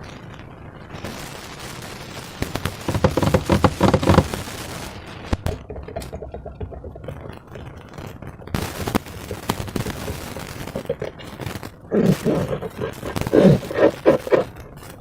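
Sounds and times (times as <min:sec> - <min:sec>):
slime squeezed in a balloon: 0:05.4 - 0:15.0.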